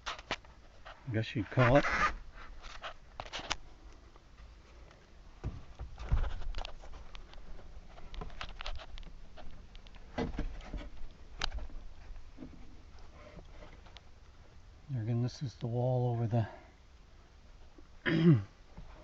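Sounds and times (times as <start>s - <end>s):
handling clicks and rustles: 0.0s - 14.4s.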